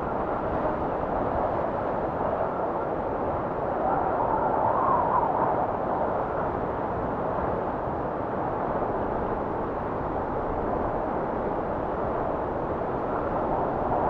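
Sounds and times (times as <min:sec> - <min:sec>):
blizzard wind rushing and whistling: 0:00.0 - 0:14.0.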